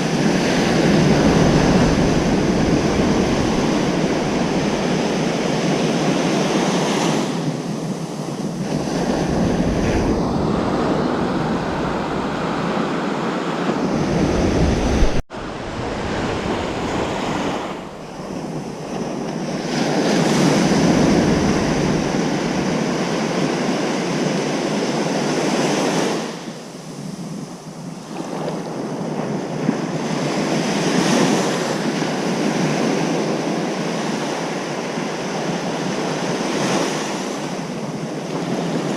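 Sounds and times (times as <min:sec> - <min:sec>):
ocean surf on beach: 0:00.0 - 0:38.9
wind on microphone: 0:00.0 - 0:38.9.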